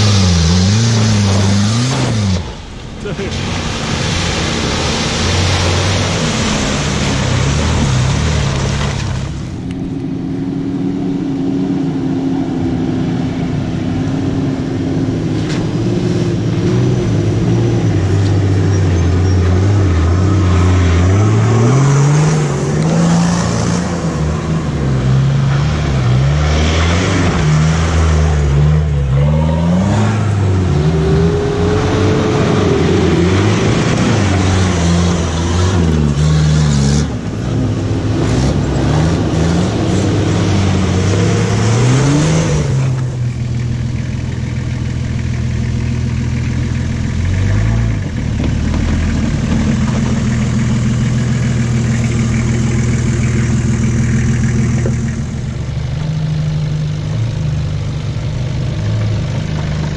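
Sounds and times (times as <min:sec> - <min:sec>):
vehicle engine revving: 0:00.0 - 0:59.9.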